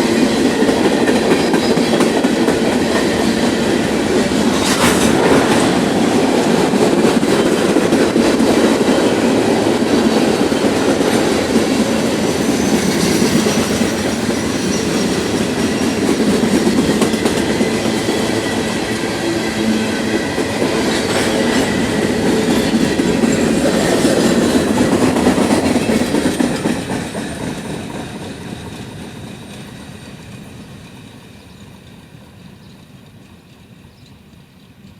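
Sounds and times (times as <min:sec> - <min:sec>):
train wheels clattering on rails: 0:00.0 - 0:34.9
faint high wheel squeal: 0:12.3 - 0:15.9.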